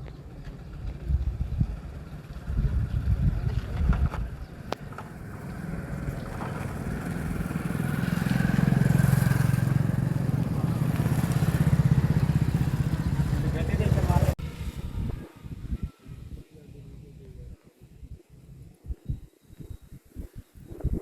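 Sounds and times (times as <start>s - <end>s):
vehicle engine running: 0.0s - 15.1s.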